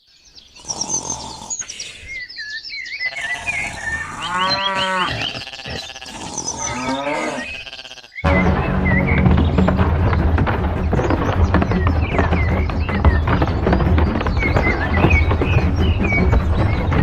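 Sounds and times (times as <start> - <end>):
birds chirping: 0.0 - 17.0
cow mooing: 3.1 - 8.3
music: 8.2 - 17.0.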